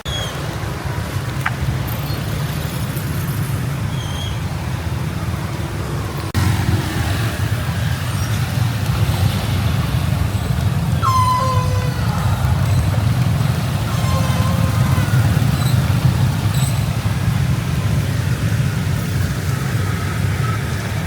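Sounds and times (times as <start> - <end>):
traffic on wet road: 0.0 - 21.0
short high squeals: 11.0 - 13.0.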